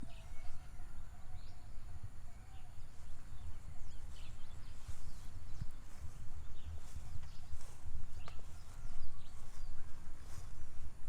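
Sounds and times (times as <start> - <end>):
birds chirping: 2.5 - 11.0.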